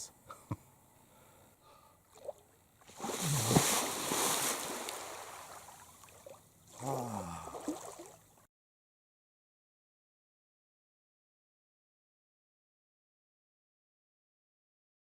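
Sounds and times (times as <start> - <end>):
water splashing around a canoe: 2.1 - 8.4.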